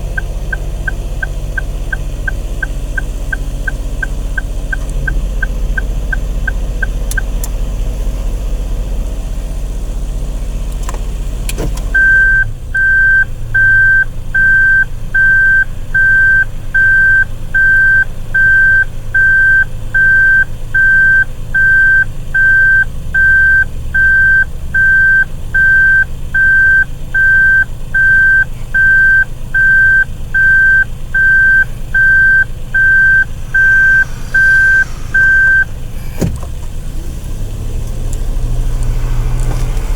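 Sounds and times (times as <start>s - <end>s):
car warning buzzer beeping: 0.0s - 7.4s, 12.0s - 36.6s
car engine idling: 0.0s - 39.9s
short electronic beeps: 12.0s - 36.3s
clunk: 32.8s - 38.2s.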